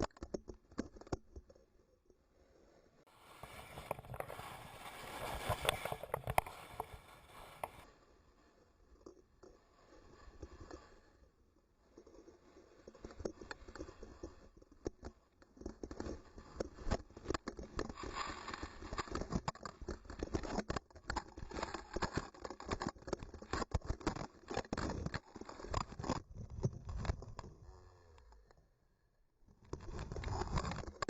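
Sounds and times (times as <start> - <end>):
skis scraping over hard snow: 3.1 - 7.9, 15.7 - 26.2.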